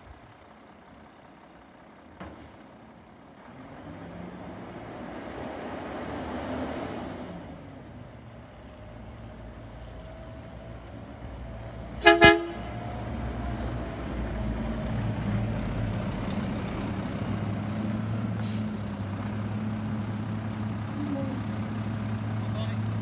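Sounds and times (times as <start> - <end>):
truck horn toots: 12.0 - 12.9
garbage truck engine running: 12.0 - 23.0.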